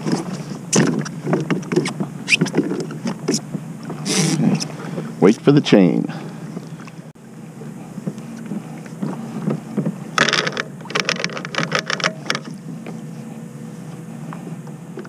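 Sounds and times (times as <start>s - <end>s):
steady low hum: 0.0s - 15.0s
chain rattling over a roller: 10.2s - 12.5s.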